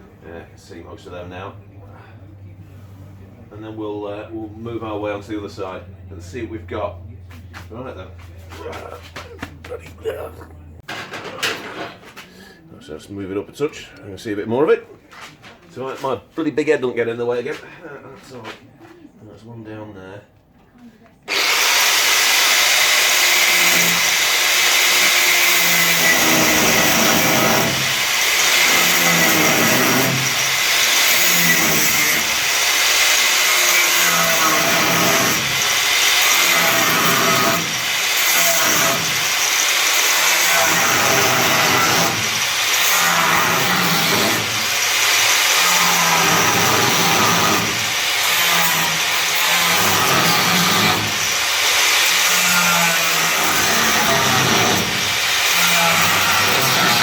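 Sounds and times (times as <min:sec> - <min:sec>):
power tool whining: 0:21.3 - 0:57.0.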